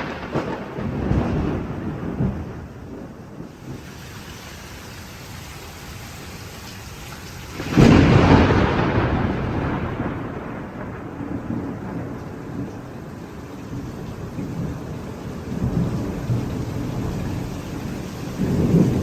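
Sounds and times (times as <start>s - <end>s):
rolling thunderclap: 0.0s - 4.1s, 7.4s - 19.0s
steady rain falling: 0.0s - 19.0s.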